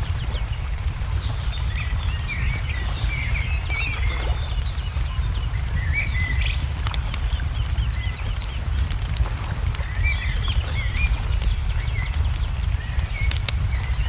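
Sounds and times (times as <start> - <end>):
songbirds chirping: 0.0 - 14.0
steady low rumble: 0.0 - 14.0
wood fire crackling: 0.0 - 14.0.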